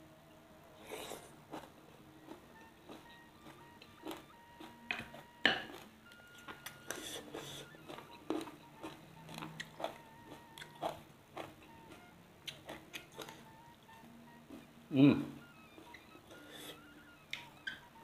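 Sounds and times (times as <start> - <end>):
person crunching food: 0.8 - 4.7, 5.6 - 13.4.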